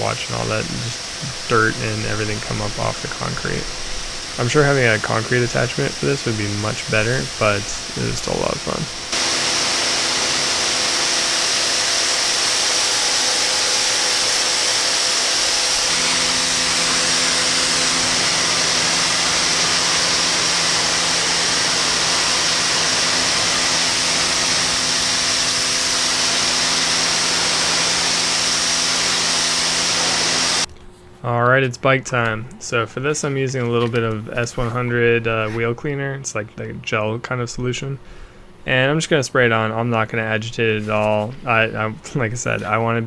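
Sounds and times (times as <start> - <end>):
water jet hissing: 0.0 - 30.7, 32.6 - 36.1, 37.8 - 43.0
pressure washer motor hum: 0.0 - 30.8, 32.0 - 35.9, 37.8 - 43.0.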